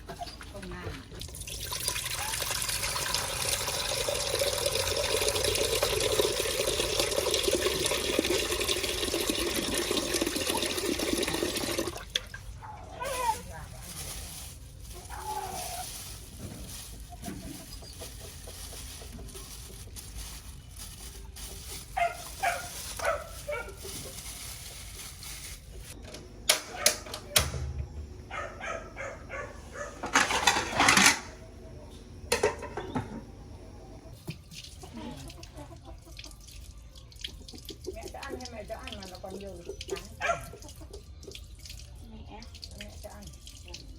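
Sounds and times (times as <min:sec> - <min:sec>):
chickens clucking: 0:16.4 - 0:24.8, 0:28.4 - 0:34.2, 0:34.8 - 0:36.6.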